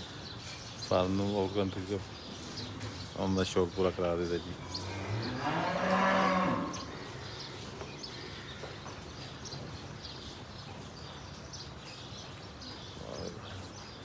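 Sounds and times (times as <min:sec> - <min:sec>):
birds chirping: 0:00.0 - 0:14.0
cow mooing: 0:04.8 - 0:07.1.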